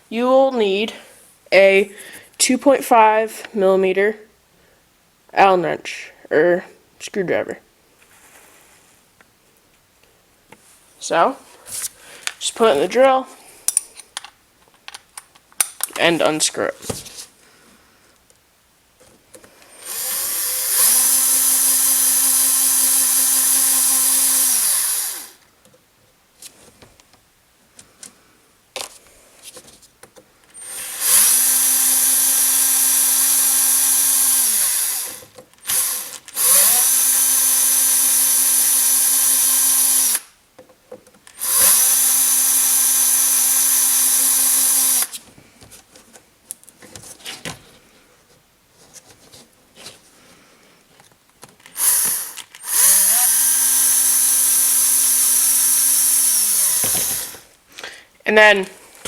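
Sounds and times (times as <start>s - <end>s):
small power drill whining: 19.6s - 25.4s, 30.6s - 40.3s, 41.3s - 45.2s, 51.7s - 57.5s.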